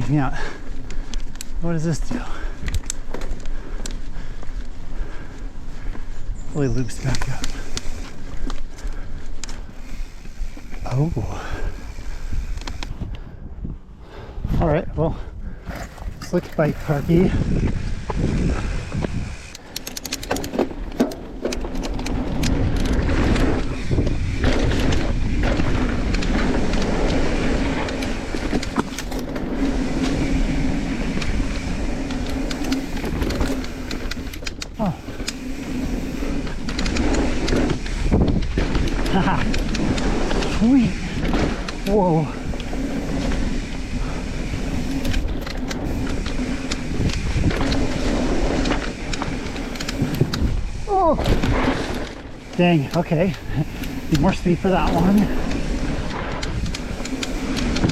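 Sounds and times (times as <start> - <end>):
tyres rolling on dirt: 0.0 - 13.0, 15.6 - 57.9
bike clicks and rattles: 0.0 - 14.4, 15.1 - 57.9.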